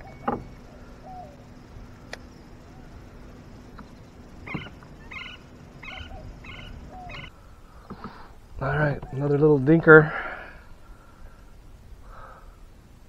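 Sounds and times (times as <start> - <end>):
bird short calls: 4.4 - 7.3.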